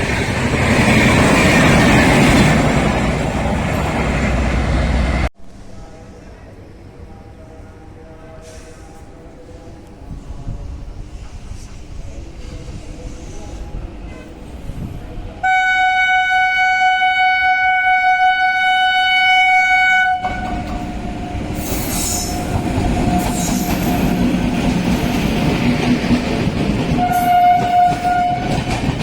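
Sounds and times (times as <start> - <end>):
train rumble: 0.0 - 29.0
long train horn blast: 15.4 - 21.0, 26.9 - 28.7
train wheels clattering: 20.2 - 29.0.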